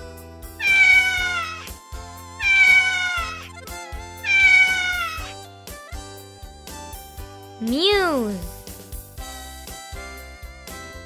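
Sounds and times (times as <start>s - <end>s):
light background music: 0.0s - 11.0s
cat meowing: 0.6s - 1.6s, 2.4s - 3.4s, 4.2s - 5.3s.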